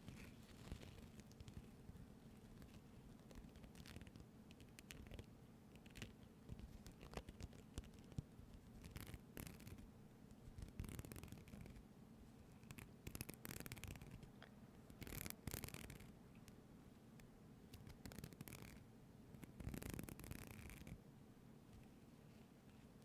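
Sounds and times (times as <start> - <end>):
close-up scratching and brushing: 0.0 - 11.8, 12.6 - 16.1, 19.4 - 21.0.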